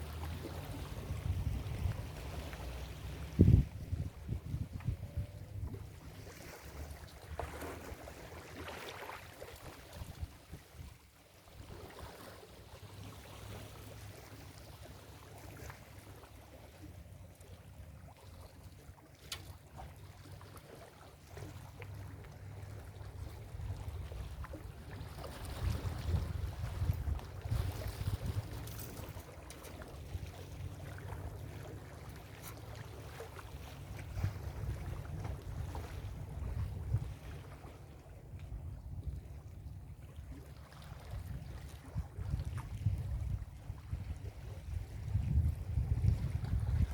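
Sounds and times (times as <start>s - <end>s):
wind rumble on microphone: 0.0s - 8.2s, 9.6s - 12.2s, 22.0s - 46.9s.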